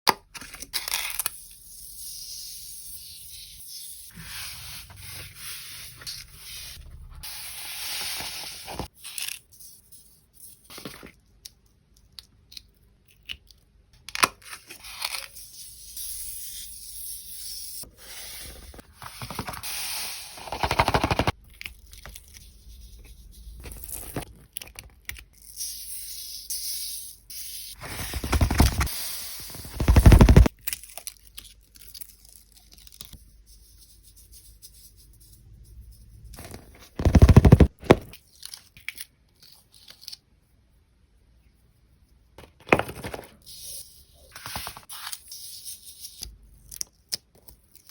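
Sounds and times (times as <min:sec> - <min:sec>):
sand hissing and scraping: 0:01.7 - 0:08.9, 0:16.9 - 0:20.6, 0:27.7 - 0:30.5.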